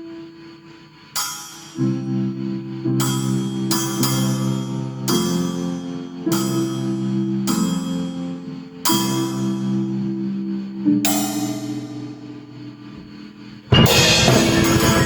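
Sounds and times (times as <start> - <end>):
keyboard chords: 1.2 - 15.0
cymbal crashes: 13.7 - 15.0.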